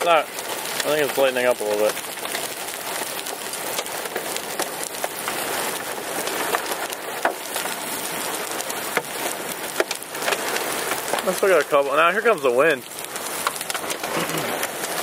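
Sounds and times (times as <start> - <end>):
hailstones hitting car body: 0.0 - 15.0
rain hissing on a car: 0.0 - 15.0.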